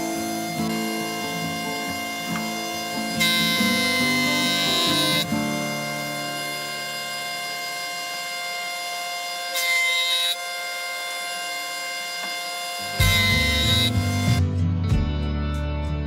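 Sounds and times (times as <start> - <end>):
music holding sustained chord: 0.0 - 7.2.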